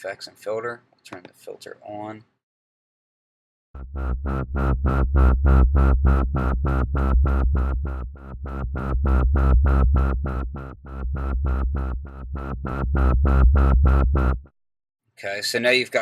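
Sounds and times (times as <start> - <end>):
pulsing synth wobble bass: 3.8 - 14.5.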